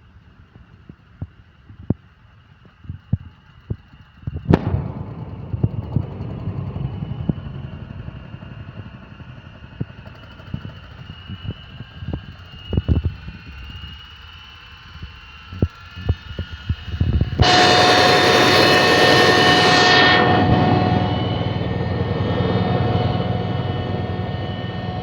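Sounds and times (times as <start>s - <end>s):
sharp crack: 4.5s - 8.0s
thin high whine: 12.6s - 25.0s.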